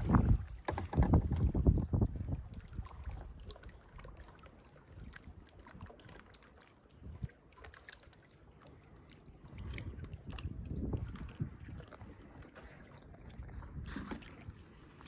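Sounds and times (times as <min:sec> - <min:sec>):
wind rumble on microphone: 0:00.0 - 0:03.8, 0:07.0 - 0:07.4, 0:09.5 - 0:15.0
paddle splashes: 0:00.0 - 0:15.0
water trickling and dripping: 0:01.3 - 0:15.0.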